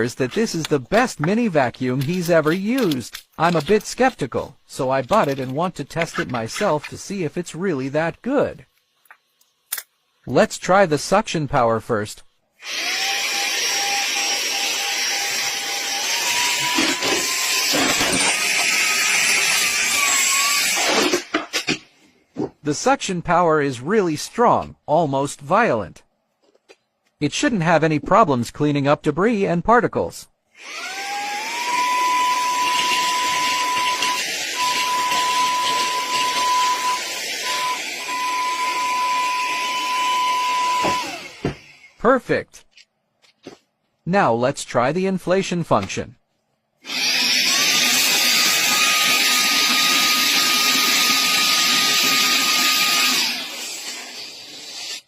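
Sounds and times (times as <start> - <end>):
handheld vacuum running: 12.6 - 21.2, 30.6 - 41.9, 46.8 - 55.0
mini vacuum motor whine: 30.6 - 42.0.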